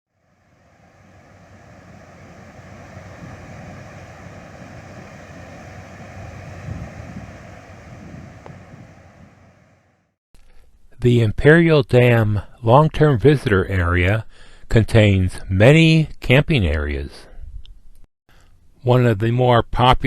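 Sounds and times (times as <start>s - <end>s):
vehicle driving on road: 0.1s - 10.1s.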